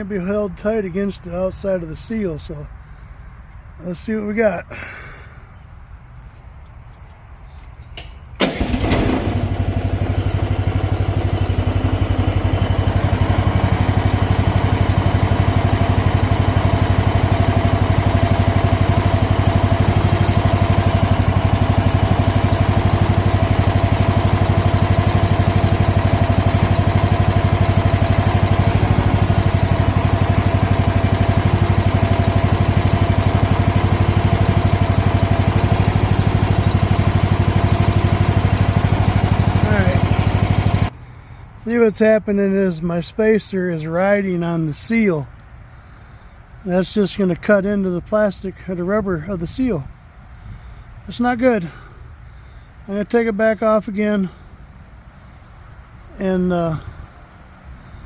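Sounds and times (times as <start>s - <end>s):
small excavator engine running: 7.5s - 41.6s.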